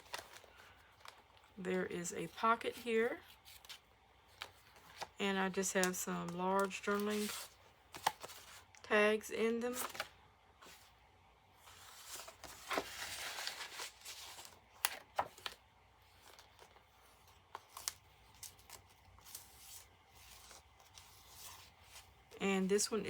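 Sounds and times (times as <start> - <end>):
paper rustling and sliding: 6.6 - 8.6, 11.6 - 22.1.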